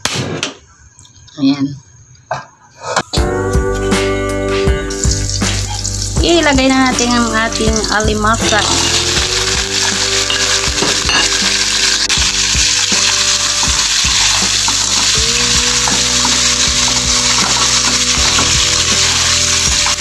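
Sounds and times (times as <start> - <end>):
crabs sizzling in hot oil: 5.0 - 20.0.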